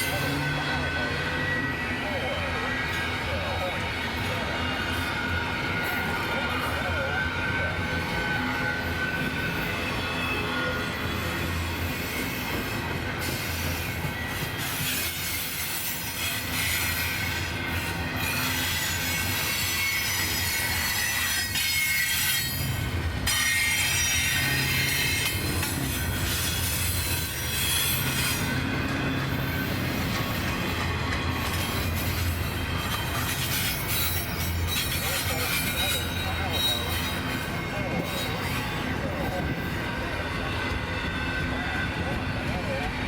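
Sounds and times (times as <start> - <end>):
train freight cars rumbling: 0.0 - 43.0
high-pitched wheel squeal: 31.1 - 39.8.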